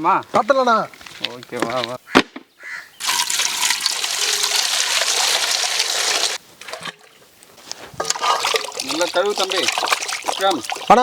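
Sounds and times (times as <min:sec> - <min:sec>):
water pouring: 0:03.0 - 0:07.2, 0:08.0 - 0:11.0.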